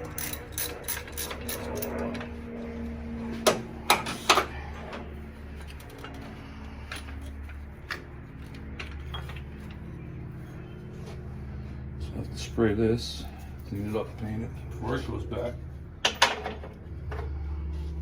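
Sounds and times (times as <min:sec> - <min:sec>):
steady low hum: 0:00.0 - 0:18.0
tools knocking and clinking: 0:16.0 - 0:16.7.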